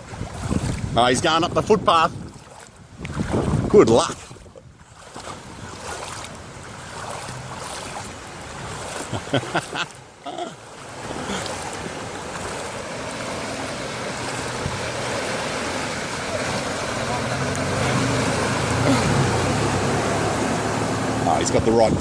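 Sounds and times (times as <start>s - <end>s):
water washing: 2.2s - 21.8s
vehicle engine running: 12.0s - 22.0s.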